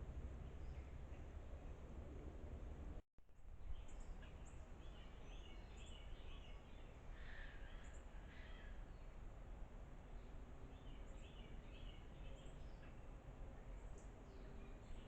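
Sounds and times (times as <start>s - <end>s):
low background rumble: 0.0s - 3.0s
small birds chirping: 3.6s - 9.0s, 10.0s - 15.0s.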